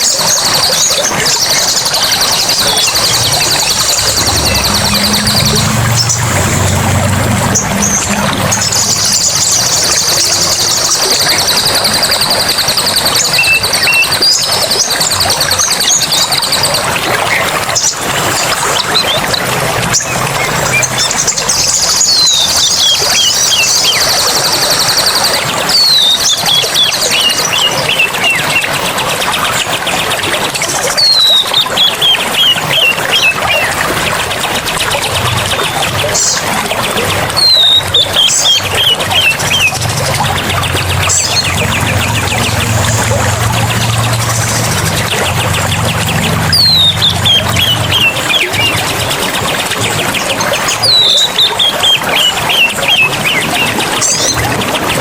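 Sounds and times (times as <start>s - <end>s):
high bird trill: 0.0s - 28.8s, 36.1s - 49.6s
rushing water: 0.0s - 55.0s
bird chirps and whistles: 20.0s - 28.7s, 31.0s - 33.8s, 37.4s - 39.9s, 46.5s - 48.9s, 50.7s - 54.4s.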